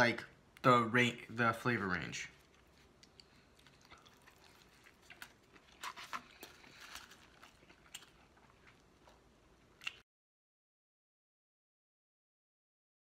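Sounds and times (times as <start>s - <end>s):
faint chewing: 2.3s - 10.0s.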